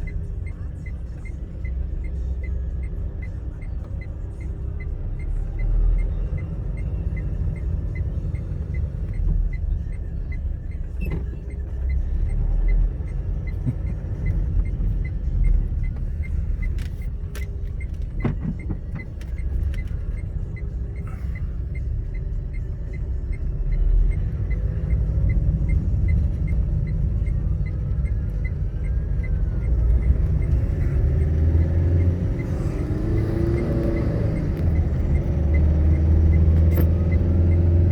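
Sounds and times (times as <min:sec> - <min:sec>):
motor vehicle rumble on road: 0:00.0 - 0:37.9.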